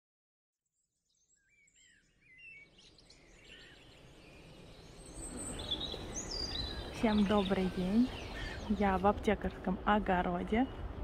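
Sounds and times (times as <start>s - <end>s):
background noise: 0.8s - 11.0s
small birds chirping: 1.1s - 11.0s.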